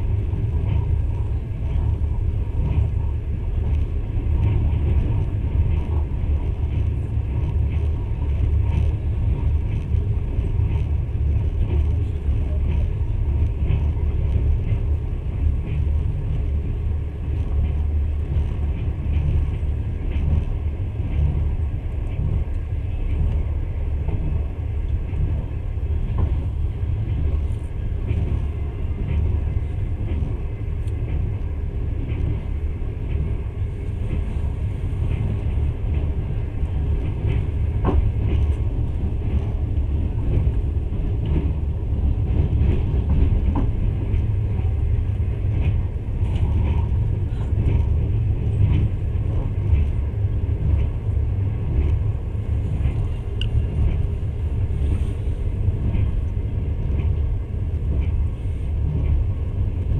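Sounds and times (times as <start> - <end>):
train carriage rumbling: 0.0 - 59.9
faint clicks: 52.8 - 54.0.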